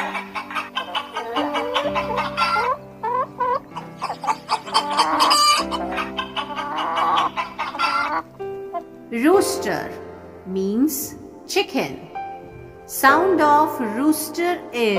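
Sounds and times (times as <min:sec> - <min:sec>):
hens clucking: 0:00.0 - 0:08.9
background music: 0:00.0 - 0:14.9.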